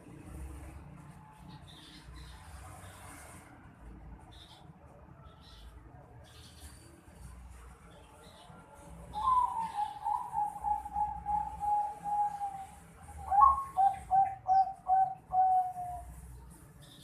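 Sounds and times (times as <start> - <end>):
dove cooing: 9.2 - 16.1.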